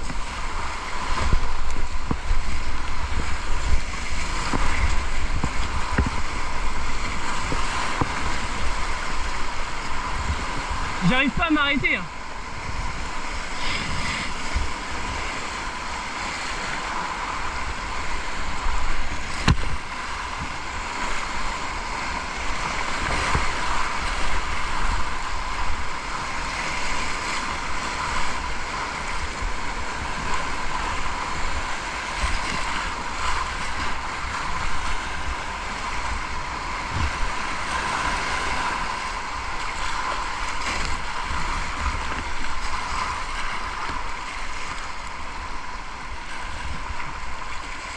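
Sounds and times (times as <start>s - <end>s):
river water rushing: 0.0s - 47.9s
wind buffeting microphone: 0.0s - 47.9s
knock on kayak: 4.4s - 6.3s, 19.4s - 19.8s.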